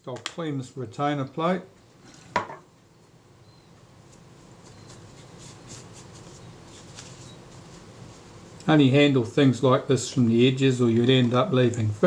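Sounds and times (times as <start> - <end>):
cotton bud scratching on metal: 4.6 - 8.5.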